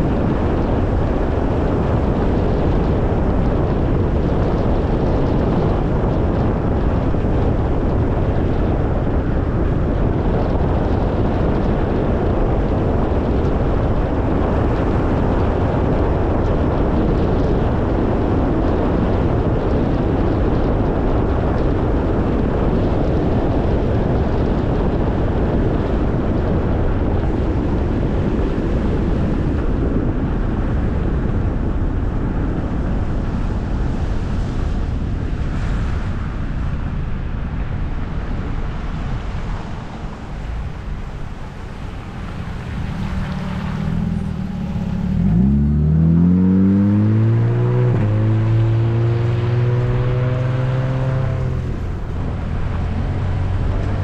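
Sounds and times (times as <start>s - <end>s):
tyre and road noise: 0.0s - 54.0s
wind noise on microphone: 0.0s - 54.0s
car engine hum: 32.7s - 54.0s.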